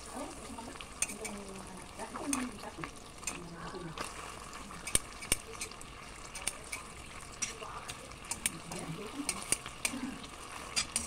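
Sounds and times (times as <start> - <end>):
meat sizzling in oil: 0.0 - 11.0
metal tongs clicking and scraping: 1.0 - 1.4, 3.2 - 3.4, 4.8 - 10.0, 10.7 - 11.0.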